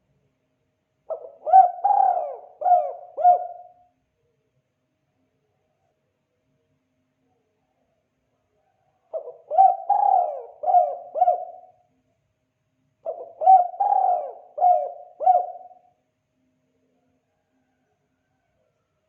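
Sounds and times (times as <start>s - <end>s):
dove cooing: 1.1s - 3.8s, 9.1s - 11.8s, 13.0s - 15.9s.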